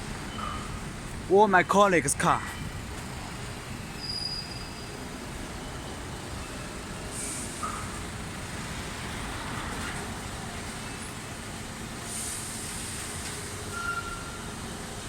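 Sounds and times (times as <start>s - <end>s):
vehicle rumble: 0.0s - 15.0s
short high beep: 13.7s - 14.4s.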